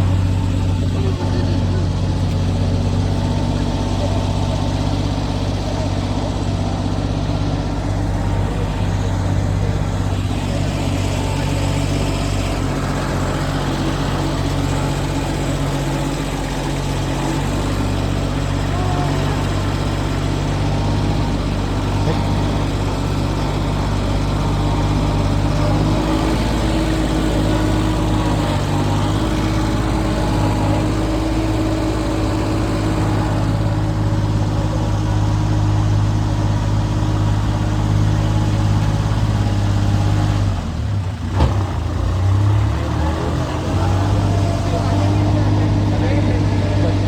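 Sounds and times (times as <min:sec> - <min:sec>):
engine humming: 0:00.0 - 0:47.0.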